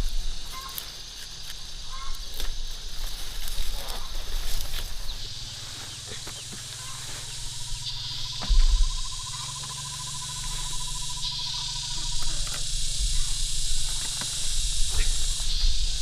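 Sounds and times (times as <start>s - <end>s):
insects droning: 0.0s - 16.0s
pulsing insect trill: 0.0s - 16.0s
low thump: 8.4s - 9.1s
rustles and clicks: 11.9s - 16.0s.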